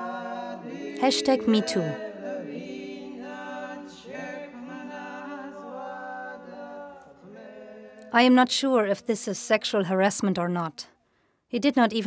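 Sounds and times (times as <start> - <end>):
voices singing held notes: 0.0 - 8.9.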